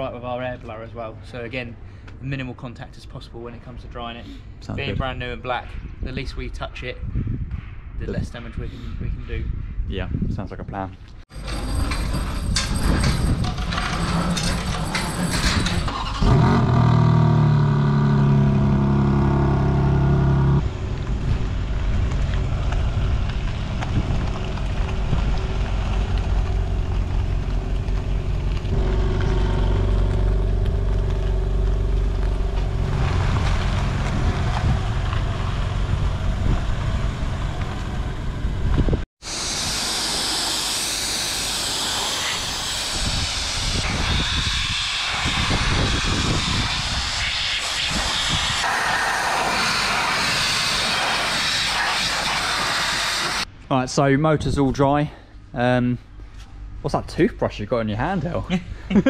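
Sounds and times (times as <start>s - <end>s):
roller shutter rattling open: 11.3s - 18.4s
air blower hissing: 39.2s - 53.5s.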